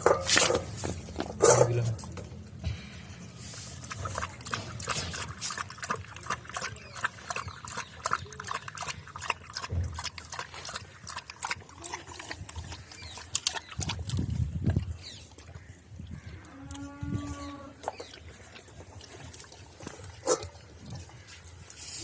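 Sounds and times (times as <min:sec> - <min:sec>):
dog chewing and lapping: 0:03.5 - 0:16.0, 0:17.8 - 0:21.8.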